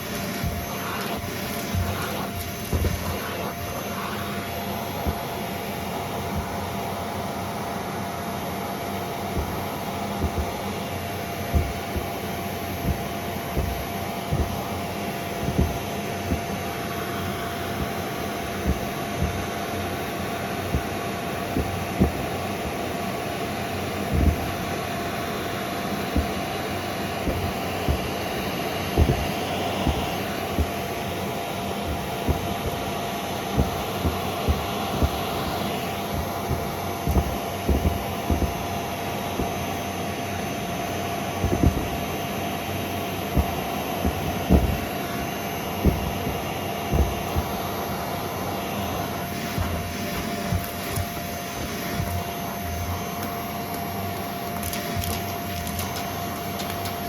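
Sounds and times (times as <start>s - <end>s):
vacuum cleaner motor whine: 0.0s - 57.0s
debris rattling up hose: 54.6s - 56.0s.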